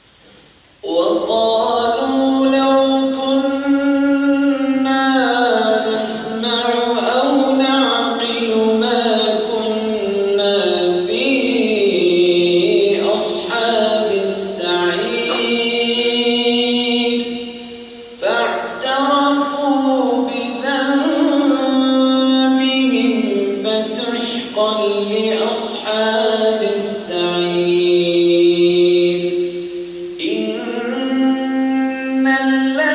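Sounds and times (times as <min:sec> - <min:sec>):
man chanting recitation: 0:00.8 - 0:32.9.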